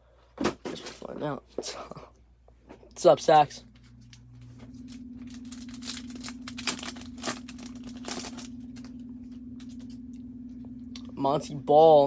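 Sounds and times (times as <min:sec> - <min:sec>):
low hum: 0:02.2 - 0:12.0
foil wrappers crinkling and tearing: 0:04.8 - 0:09.0.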